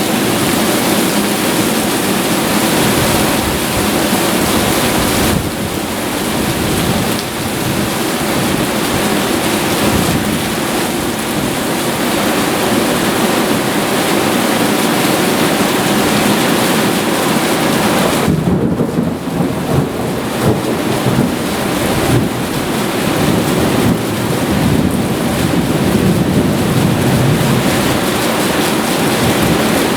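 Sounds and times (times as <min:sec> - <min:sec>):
heavy rain pouring: 0:00.0 - 0:29.9
thunder rumbling: 0:18.2 - 0:29.9.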